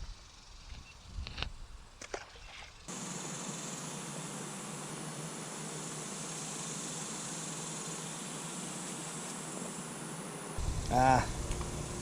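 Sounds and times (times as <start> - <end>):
high-pitched insect chorus: 0.0 - 12.0
even hiss: 2.8 - 12.0.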